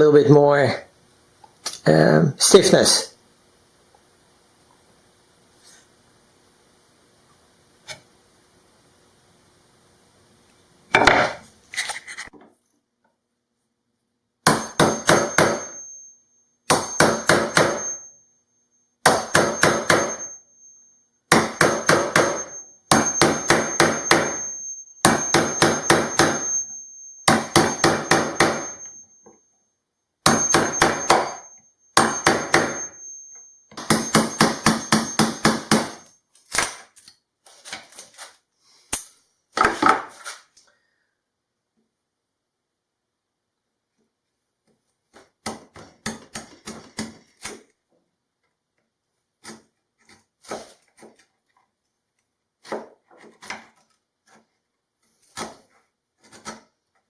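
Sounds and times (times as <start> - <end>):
hammer blows: 14.5 - 16.1, 16.7 - 18.1, 19.1 - 29.1, 30.3 - 36.1
thin high ringing note: 15.3 - 18.6, 19.3 - 21.1, 22.3 - 29.4, 30.4 - 36.1.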